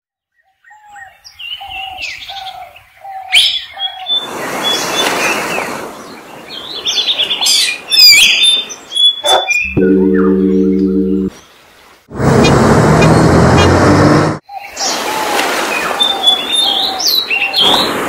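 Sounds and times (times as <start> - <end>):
bird chirps and trills: 6.9 - 11.4
bird calling mid-pitched notes: 9.2 - 11.4.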